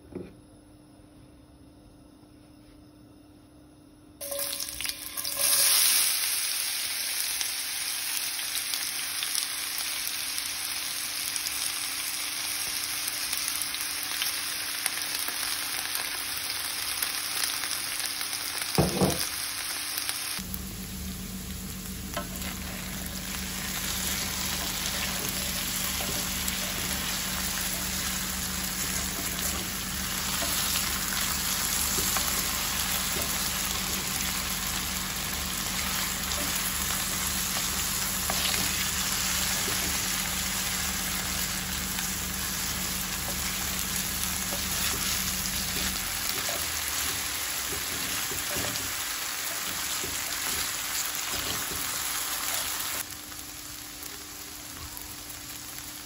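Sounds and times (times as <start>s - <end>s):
food sizzling in a pan: 4.2s - 56.0s
low steady hum: 20.4s - 50.8s.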